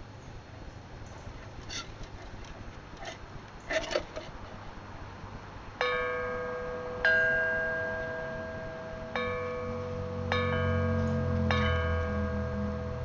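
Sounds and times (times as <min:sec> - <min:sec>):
metal chimes ringing: 0:05.8 - 0:13.0.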